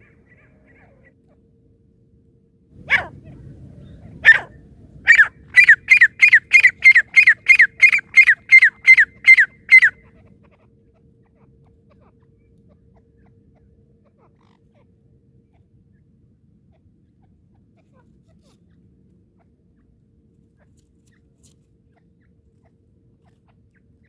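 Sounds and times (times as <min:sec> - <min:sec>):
francolin calling: 0:02.8 - 0:10.3.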